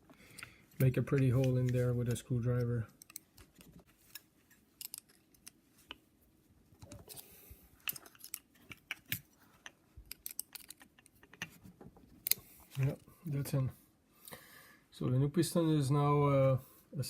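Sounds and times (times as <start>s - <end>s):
screwdriver metallic clicks and scrapes: 0.3s - 6.0s, 7.8s - 11.6s.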